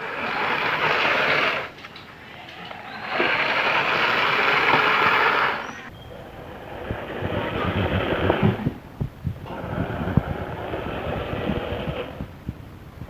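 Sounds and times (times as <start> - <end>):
toy truck motors whirring: 0.0 - 1.7, 2.6 - 5.9.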